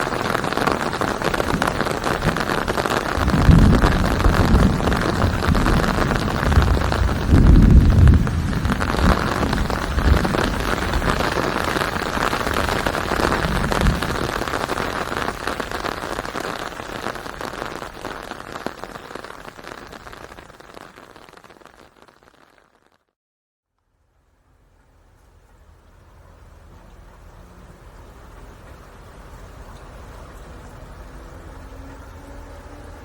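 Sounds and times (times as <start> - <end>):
steady rain falling: 0.0 - 23.0, 24.2 - 33.0
low rumble: 3.2 - 11.7.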